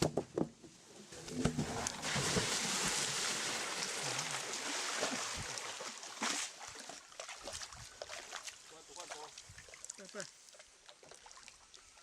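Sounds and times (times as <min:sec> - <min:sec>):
water rushing and splashing: 0:01.2 - 0:10.4.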